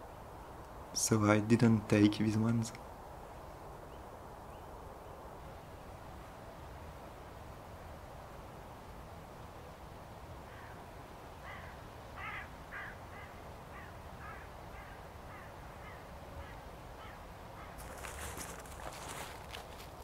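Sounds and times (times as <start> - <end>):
crackling rustle: 17.6 - 20.0.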